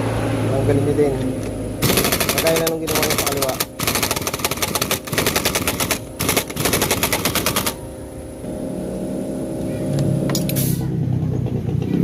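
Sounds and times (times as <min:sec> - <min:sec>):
steady low hum: 0:00.0 - 0:12.0
impact wrench rattling: 0:01.8 - 0:07.8.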